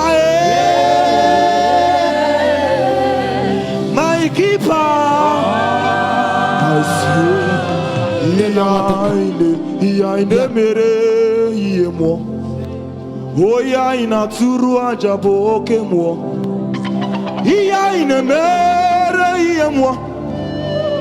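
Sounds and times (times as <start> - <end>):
gospel choir singing: 0.0 - 21.0.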